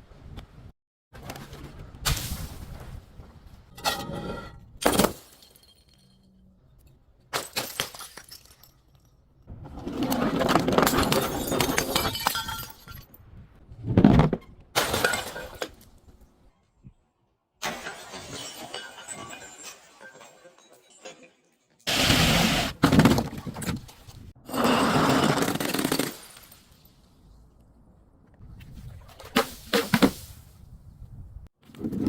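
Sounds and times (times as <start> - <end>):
glass breaking and clinking: 4.8 - 6.4, 7.4 - 9.1, 10.8 - 13.1, 14.8 - 15.8, 17.6 - 21.9
glass crunching: 17.6 - 21.7.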